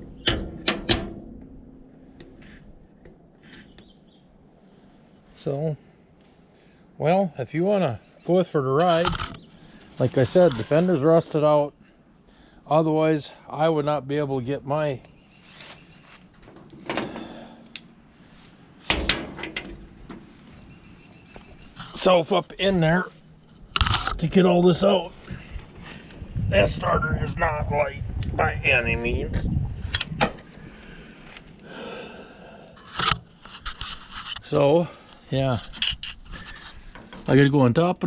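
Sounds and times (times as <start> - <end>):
light squeaks: 3.4 - 4.3, 19.6 - 22.0
heavy thump: 18.8 - 20.3.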